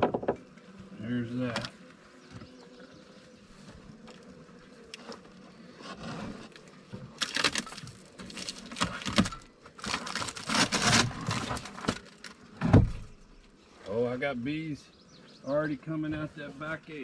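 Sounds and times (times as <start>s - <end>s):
rustling crinkling and scraping: 3.4s - 13.6s.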